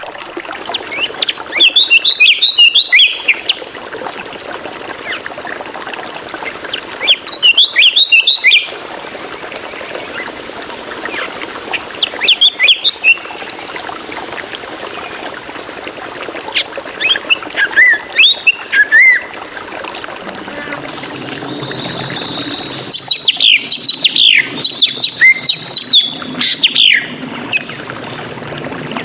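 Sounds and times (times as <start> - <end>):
bird singing whistled notes: 1.6 - 3.5, 7.0 - 8.7, 17.0 - 19.3, 21.1 - 27.6.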